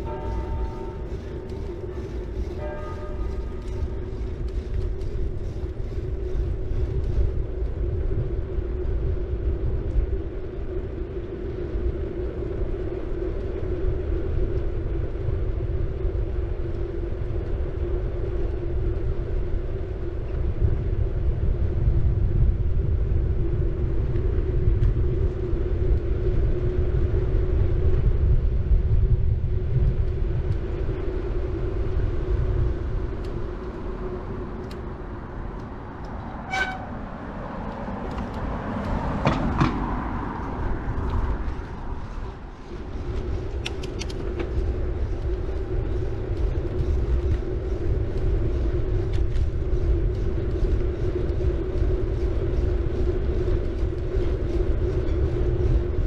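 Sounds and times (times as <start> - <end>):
bike tyres rumbling on road: 0.0 - 56.0.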